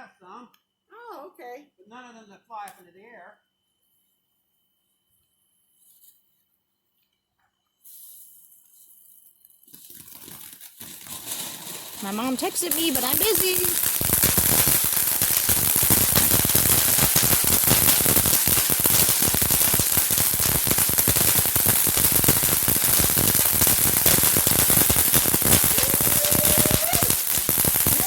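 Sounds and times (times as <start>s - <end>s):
fireworks crackling: 10.0s - 28.0s.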